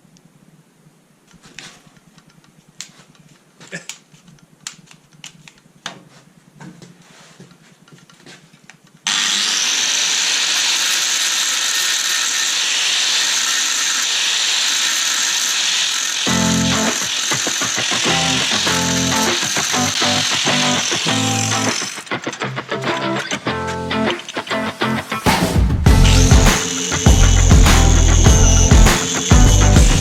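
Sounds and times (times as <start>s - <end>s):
power tool running: 9.1s - 22.4s, 25.9s - 30.0s.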